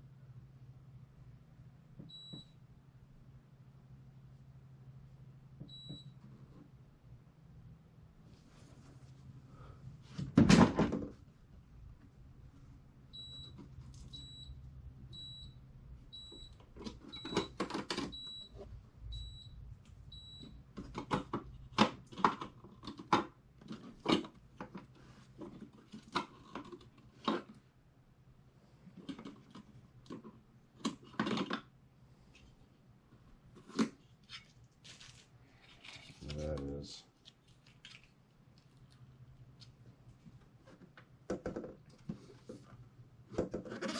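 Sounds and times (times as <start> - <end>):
low steady hum: 0.0 - 43.7.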